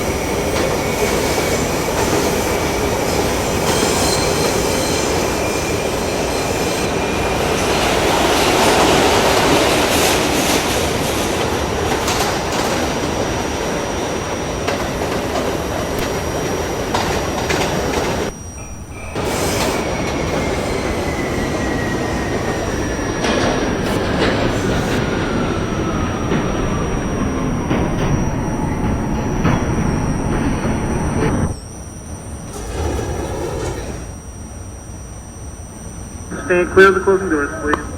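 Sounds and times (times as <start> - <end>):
wheel squeal: 0.0 - 10.7, 17.6 - 31.8, 32.4 - 34.2
subway train rumbling on rails: 0.0 - 31.6, 32.2 - 34.2.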